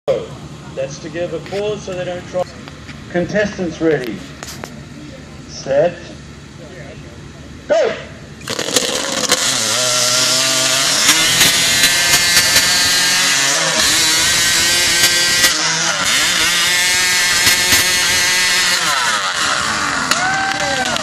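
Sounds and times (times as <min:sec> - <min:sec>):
chainsaws cutting logs: 0:08.4 - 0:21.0.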